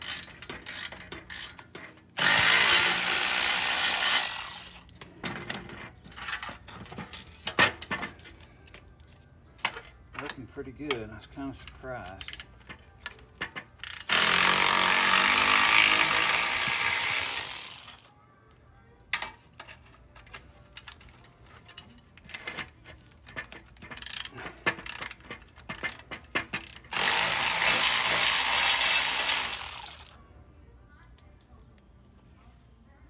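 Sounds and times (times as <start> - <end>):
tools clattering on metal: 0.0 - 2.9, 4.1 - 8.9, 9.5 - 14.3, 19.1 - 28.3
power tool running: 2.2 - 4.8, 14.0 - 18.0, 26.6 - 30.1.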